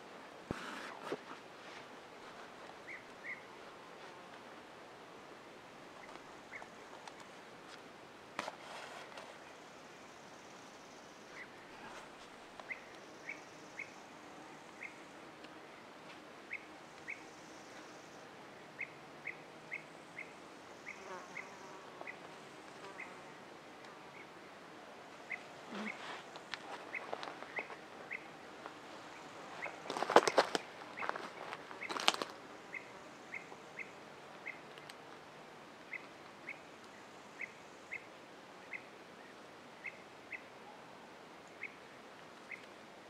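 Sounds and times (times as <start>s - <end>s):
faint insect hiss: 0.0s - 43.0s
loud crunching rustle: 28.6s - 32.4s.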